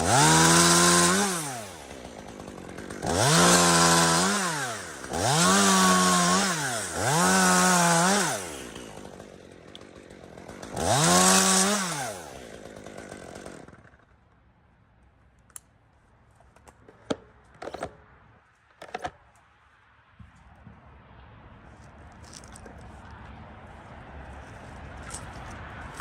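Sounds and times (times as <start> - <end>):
chainsaw idling and revving: 0.0 - 14.5.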